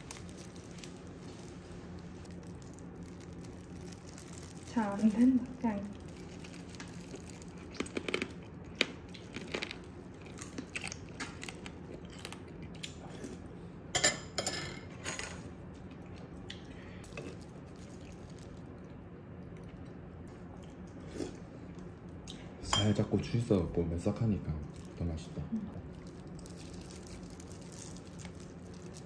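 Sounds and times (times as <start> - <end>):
chewing and biting crab: 6.1 - 13.4.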